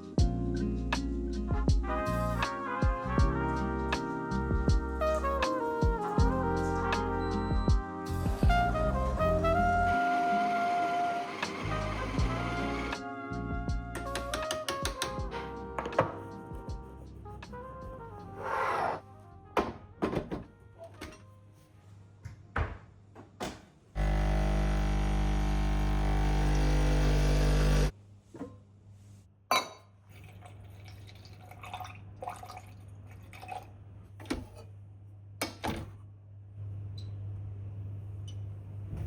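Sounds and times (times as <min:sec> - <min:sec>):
loud electric hum: 0:24.0 - 0:27.9
faint water trickle: 0:30.0 - 0:33.8.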